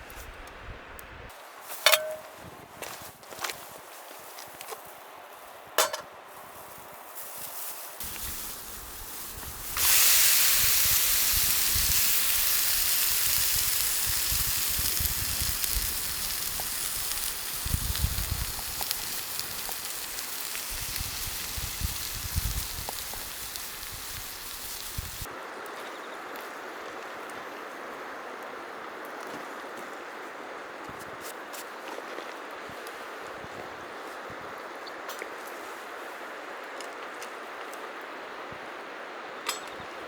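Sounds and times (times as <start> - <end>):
food sizzling in a pan: 7.1 - 25.3.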